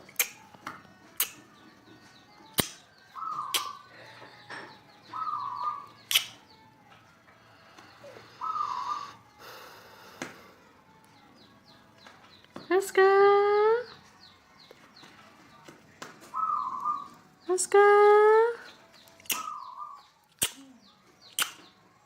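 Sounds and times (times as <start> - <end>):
sharp clicks: 6.1 - 6.4, 19.1 - 19.5, 21.3 - 21.7
short bird-like calls: 8.2 - 9.2.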